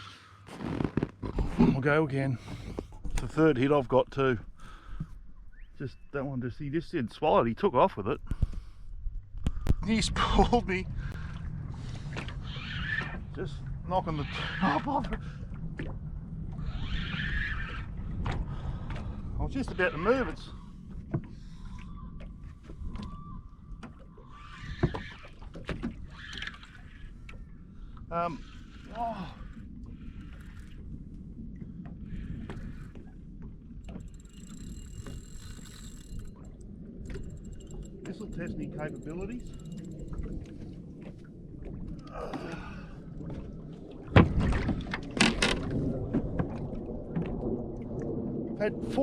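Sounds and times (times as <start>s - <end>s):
water lapping against hull: 0.0s - 49.0s
wind: 0.0s - 49.0s
steady low rumble: 28.8s - 49.0s.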